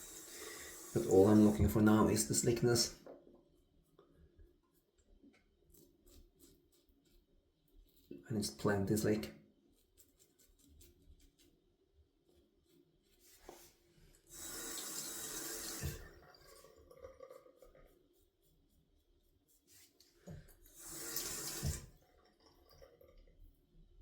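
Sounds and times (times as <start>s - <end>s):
tap water running into sink: 0.0s - 3.2s, 14.2s - 18.0s, 20.2s - 23.4s.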